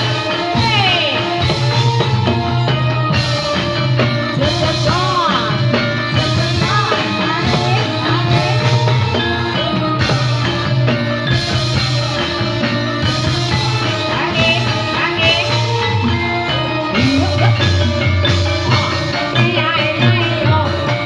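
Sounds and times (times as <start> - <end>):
rhythmic drumming: 0.0 - 21.0
gliding melody: 15.1 - 20.0.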